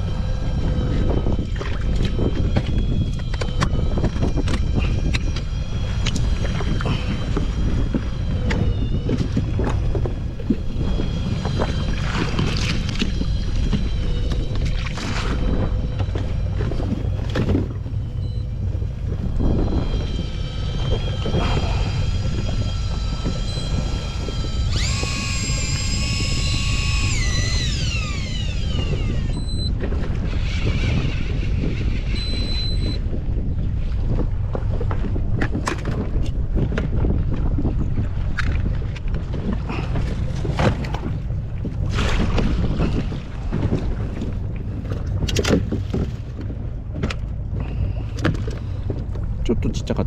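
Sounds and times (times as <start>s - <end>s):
faint high whine: 0.0s - 29.9s
water slapping against boat: 0.0s - 50.0s
wind buffeting microphone: 0.0s - 50.0s
short high beep: 32.1s - 33.0s.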